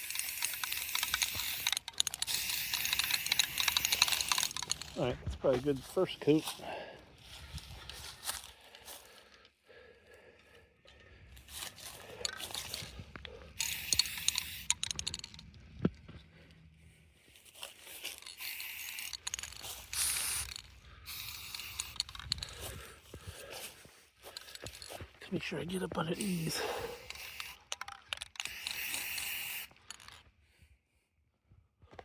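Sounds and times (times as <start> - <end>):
spray can hissing: 0.0 - 5.0, 13.6 - 15.4, 18.3 - 22.4, 26.2 - 29.8
handling clicks and scrapes: 0.0 - 9.6, 10.9 - 30.3.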